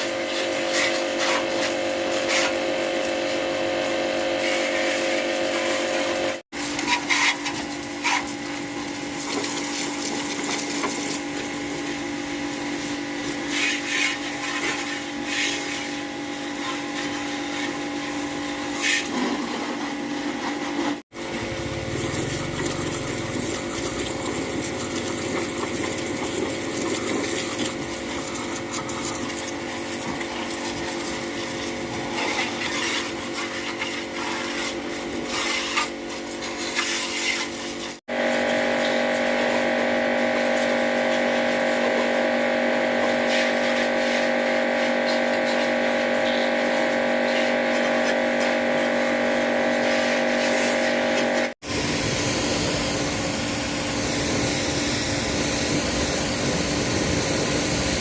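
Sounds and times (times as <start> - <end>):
power tool scraping a surface: 0.0 - 12.0, 12.6 - 58.0.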